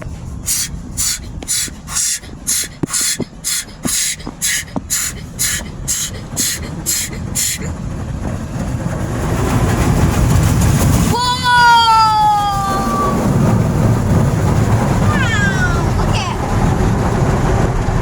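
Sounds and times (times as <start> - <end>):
spray bursts hitting car: 0.0 - 7.8
low rushing noise: 0.0 - 11.3.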